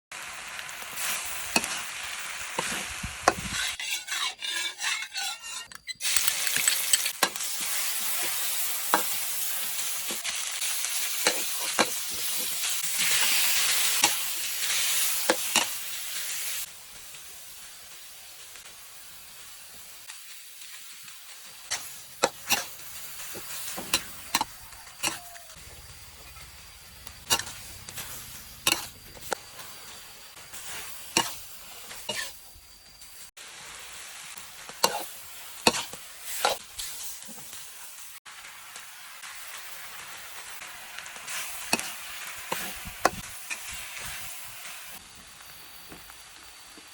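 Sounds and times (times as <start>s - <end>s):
food sizzling in a pan: 0.1s - 46.9s
utensil scraping and clacking pan: 2.6s - 10.4s, 11.1s - 15.8s, 21.7s - 25.5s, 27.2s - 29.7s, 30.6s - 32.4s, 34.7s - 37.6s, 41.7s - 44.2s.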